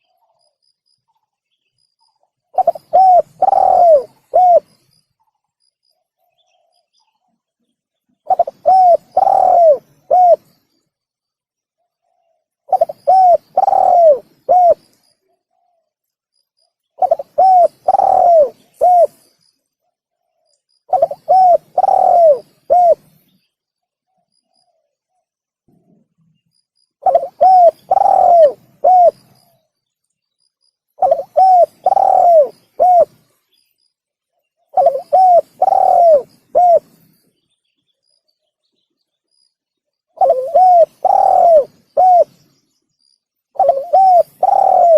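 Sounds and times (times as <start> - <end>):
dove cooing: 2.5 - 4.7, 8.3 - 10.5, 12.0 - 14.8, 17.0 - 19.2, 20.9 - 23.2, 27.0 - 29.5, 31.0 - 33.3, 34.7 - 37.1, 40.2 - 42.5, 43.6 - 44.9.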